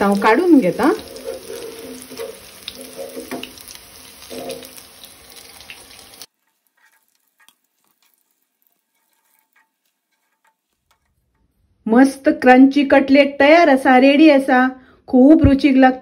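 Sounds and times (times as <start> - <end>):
cutlets sizzling in hot oil: 0.0 - 11.2
metal spoon scraping pan: 0.1 - 5.0, 6.2 - 11.6.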